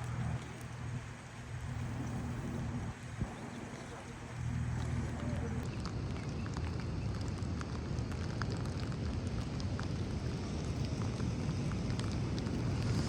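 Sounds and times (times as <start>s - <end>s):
low rumble: 0.0s - 5.7s
rain drops ticking: 0.0s - 13.0s.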